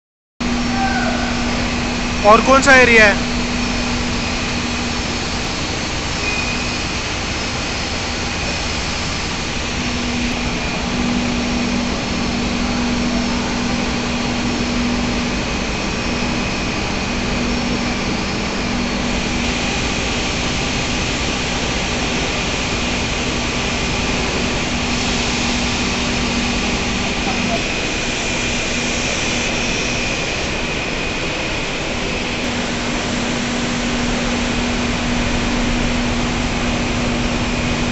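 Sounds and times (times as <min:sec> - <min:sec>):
industrial machinery drone: 0:00.4 - 0:37.9
faint high whine: 0:00.5 - 0:20.3.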